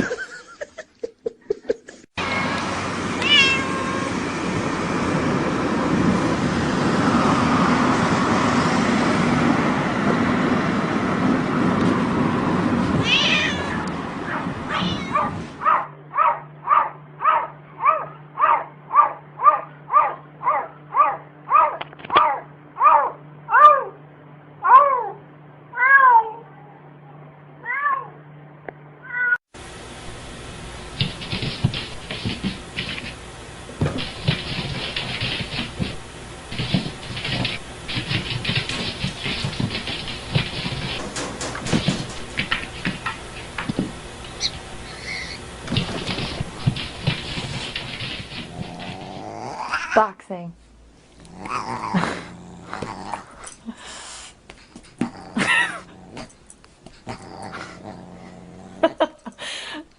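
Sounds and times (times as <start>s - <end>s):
cat meowing: 3.2s - 4.2s, 13.0s - 13.9s, 14.7s - 15.4s.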